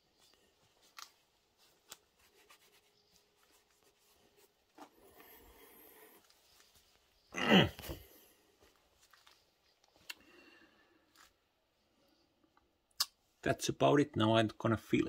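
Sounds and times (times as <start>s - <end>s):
faint rubbing and clicks: 0.1s - 5.4s.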